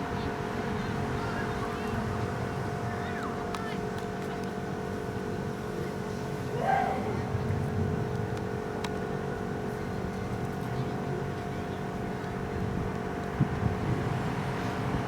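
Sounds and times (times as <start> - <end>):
faint constant hum: 0.0 - 15.0
outdoor background rumble: 0.0 - 15.0
distant shout: 6.4 - 7.4.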